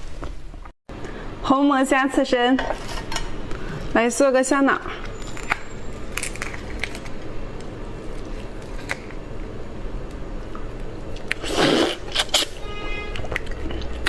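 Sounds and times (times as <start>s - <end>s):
loud noisy eating sound: 10.5s - 14.0s
chewing with wet clicks: 13.1s - 14.0s.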